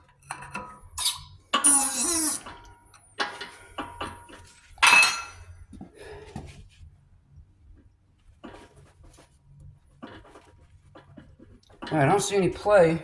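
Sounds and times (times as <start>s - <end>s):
steel parts clinking and clanking: 4.8s - 5.4s.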